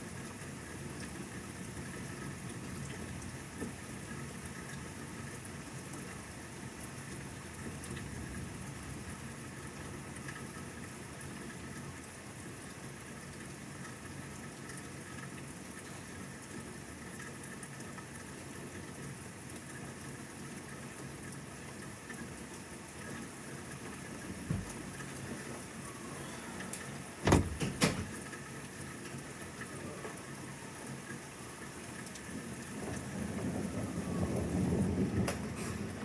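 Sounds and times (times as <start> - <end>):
steady rain: 0.0 - 36.0
short thump: 24.5 - 24.8, 27.2 - 28.2
thunder rumbling: 32.3 - 36.0.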